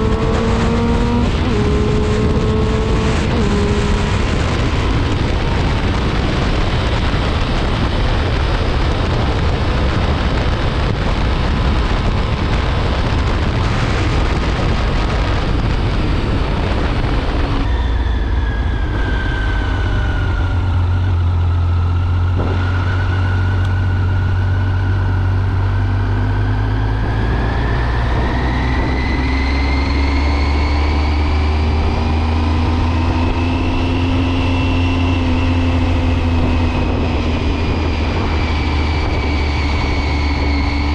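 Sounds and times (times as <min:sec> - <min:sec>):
motorcycle engine: 0:00.0 - 0:40.9
wind rush: 0:00.0 - 0:40.9.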